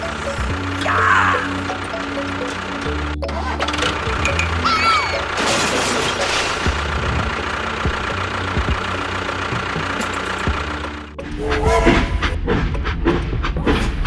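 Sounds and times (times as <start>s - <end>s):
engine running: 0.0s - 14.0s
rushing noise: 11.2s - 14.0s.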